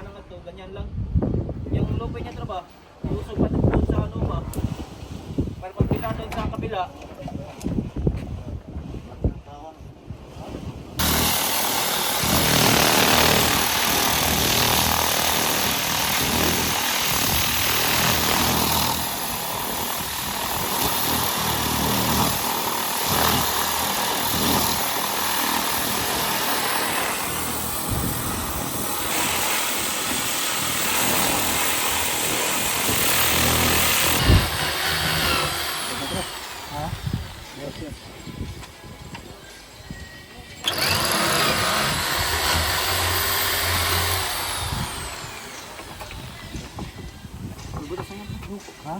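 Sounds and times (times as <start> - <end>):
power tool grinding: 11.0 - 37.7, 40.6 - 46.7.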